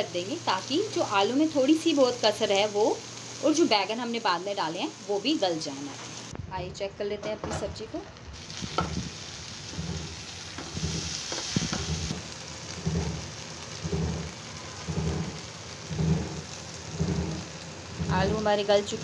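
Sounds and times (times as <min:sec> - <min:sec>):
vegetables sizzling in a pan: 0:00.0 - 0:06.3, 0:07.6 - 0:19.0
spatula scraping a pan: 0:08.4 - 0:19.0.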